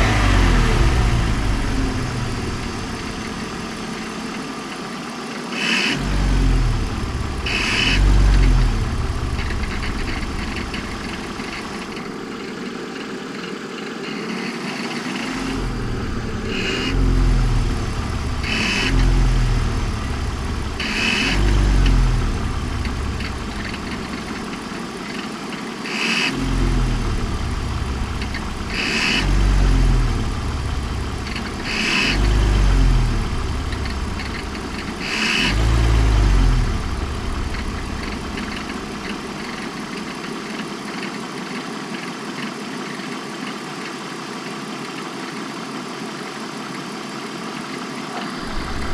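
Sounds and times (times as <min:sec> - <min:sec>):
car engine idling with throttle blips: 0:00.0 - 0:48.9
high-pitched squeal: 0:07.0 - 0:12.1, 0:14.1 - 0:25.0, 0:31.2 - 0:40.0, 0:48.4 - 0:48.9.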